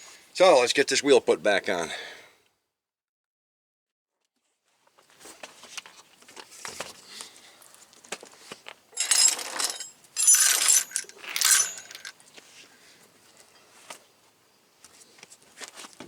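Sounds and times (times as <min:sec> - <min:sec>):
metal hardware jangling: 0:09.0 - 0:12.1.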